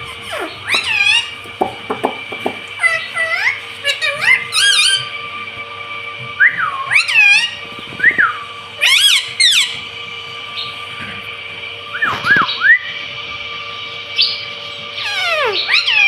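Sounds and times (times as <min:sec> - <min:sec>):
parrot whistled calls: 0:00.0 - 0:01.6, 0:02.5 - 0:05.3, 0:06.4 - 0:11.1, 0:11.9 - 0:13.1, 0:14.1 - 0:16.0.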